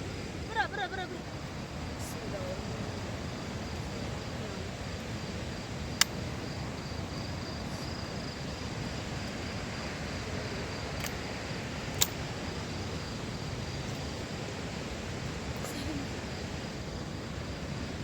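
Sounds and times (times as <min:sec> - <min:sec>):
crickets chirping: 0:00.0 - 0:18.0
steady hiss: 0:00.0 - 0:18.0
sharp clicks: 0:06.0 - 0:06.2, 0:11.0 - 0:11.2, 0:11.9 - 0:12.2.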